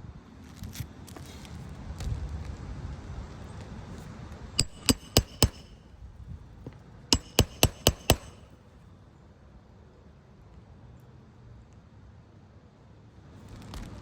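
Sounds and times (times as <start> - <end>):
hammer driving nails: 4.6 - 5.8, 7.2 - 8.5.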